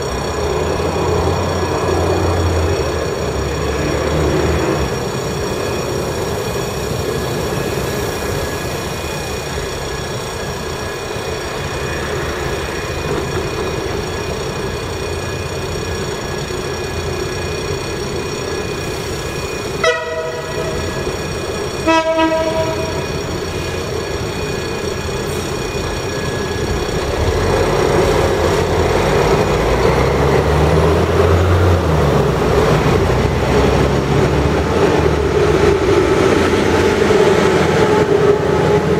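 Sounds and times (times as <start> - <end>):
diesel locomotive rumble: 0.0 - 38.9
train horn blasts: 19.8 - 20.9, 21.8 - 23.1.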